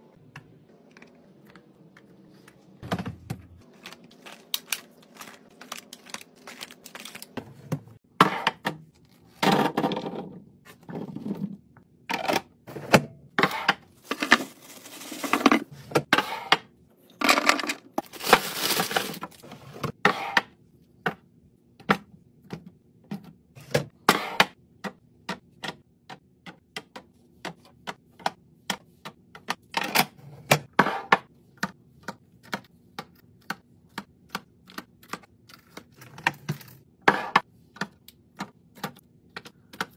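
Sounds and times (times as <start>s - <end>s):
items set down on fridge shelves: 2.8s - 11.6s.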